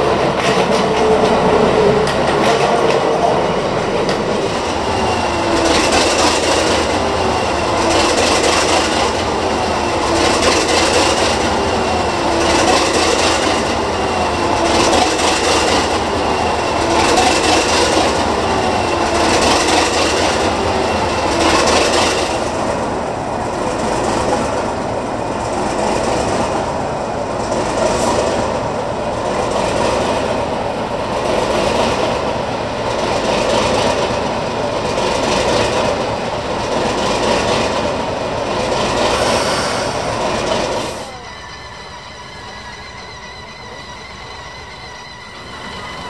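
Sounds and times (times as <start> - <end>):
train wheels clacking over rail joints: 0.0 - 22.9, 27.4 - 41.3.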